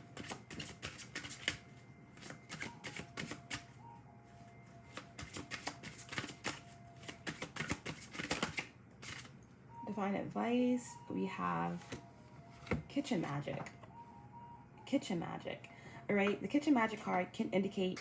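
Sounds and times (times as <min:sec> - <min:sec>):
cards being shuffled: 0:00.2 - 0:01.6, 0:02.2 - 0:03.6, 0:04.9 - 0:09.3.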